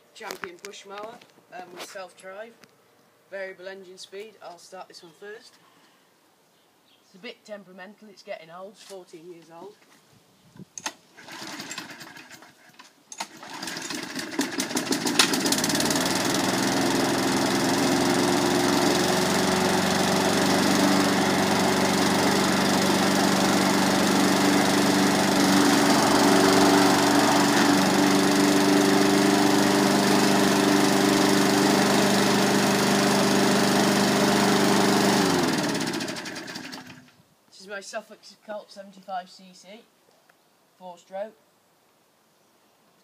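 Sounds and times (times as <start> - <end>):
pull cord starting: 10.8 - 37.2
lawn mower engine running: 11.2 - 37.1.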